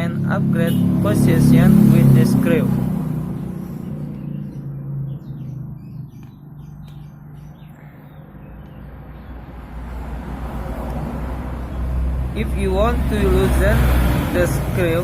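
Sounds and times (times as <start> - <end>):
small bird chirping: 2.5 - 9.8.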